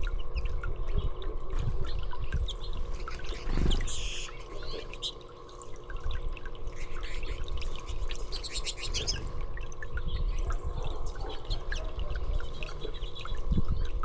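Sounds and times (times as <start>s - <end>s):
songbirds chirping: 9.9s - 14.0s.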